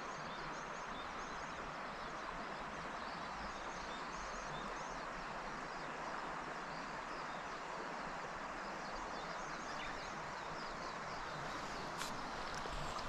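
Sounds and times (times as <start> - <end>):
river water rushing: 5.0 - 13.0
small birds chirping: 9.2 - 13.0.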